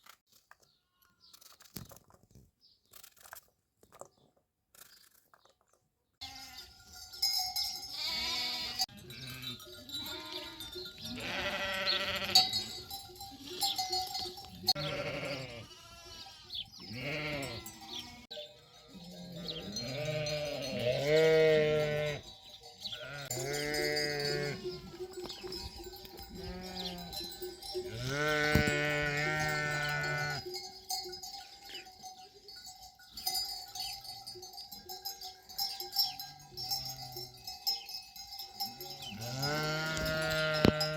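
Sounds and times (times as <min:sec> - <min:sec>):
sheep and lambs bleating: 0:06.2 - 0:07.0, 0:07.8 - 0:30.6, 0:38.6 - 0:40.9
sheep bells tinkling: 0:06.2 - 0:40.9.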